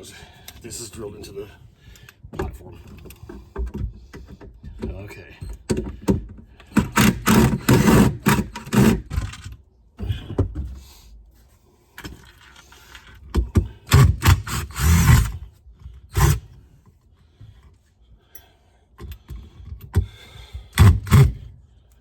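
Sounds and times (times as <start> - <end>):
fastenings tearing wood: 6.6 - 9.6, 12.1 - 16.7, 20.7 - 21.5.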